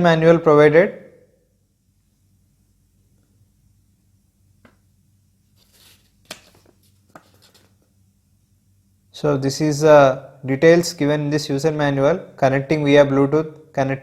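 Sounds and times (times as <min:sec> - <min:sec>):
paper rustling: 0:05.5 - 0:07.9.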